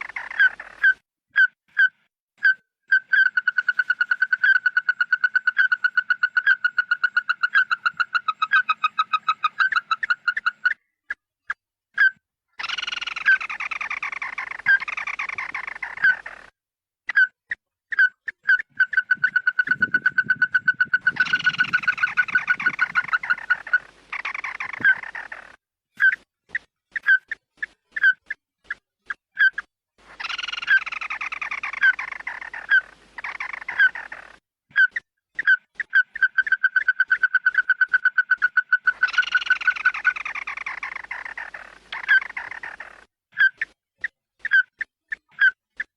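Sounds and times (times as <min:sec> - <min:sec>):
harsh falling bird calls: 0:00.0 - 0:01.0, 0:12.6 - 0:16.5, 0:17.9 - 0:26.2, 0:30.1 - 0:43.5
recorded bird calls and trills: 0:00.0 - 0:45.9.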